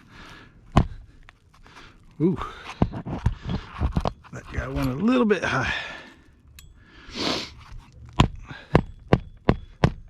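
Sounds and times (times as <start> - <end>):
short rasping scrape: 7.1 - 8.0.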